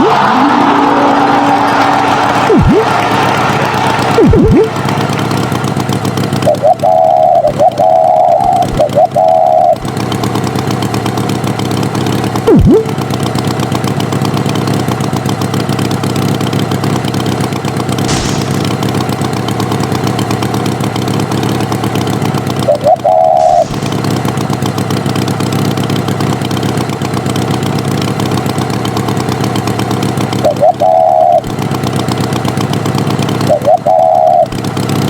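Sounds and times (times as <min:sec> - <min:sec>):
short warbling high tone: 0:00.0 - 0:01.1, 0:02.5 - 0:03.0, 0:04.1 - 0:04.8, 0:12.5 - 0:12.9, 0:22.7 - 0:24.4
tractor engine idling: 0:00.0 - 0:35.0.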